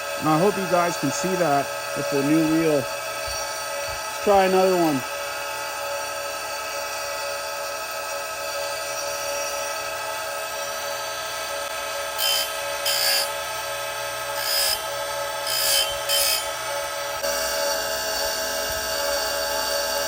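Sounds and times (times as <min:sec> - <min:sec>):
grinding wheel on saw chain: 0:00.0 - 0:05.1, 0:12.0 - 0:13.6, 0:14.3 - 0:16.6
bench grinder whining: 0:00.0 - 0:20.0.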